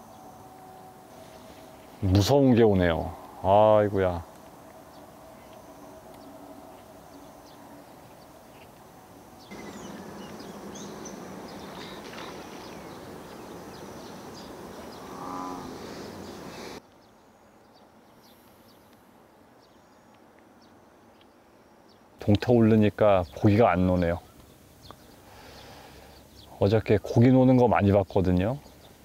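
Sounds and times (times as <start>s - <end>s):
faint high chirps: 4.2s - 17.2s
low moo-like animal call: 9.5s - 16.8s.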